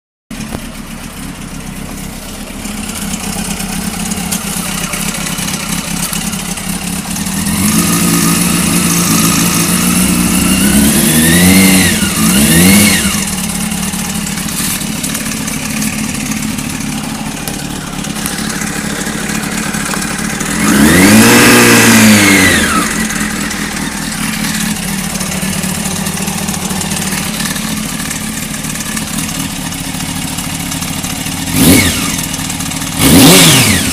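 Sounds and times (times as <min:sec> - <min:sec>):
engine rattle: 0:00.3 - 0:33.9
motorcycle engine idling: 0:00.3 - 0:33.9
engine revving: 0:02.9 - 0:29.4, 0:31.4 - 0:33.9.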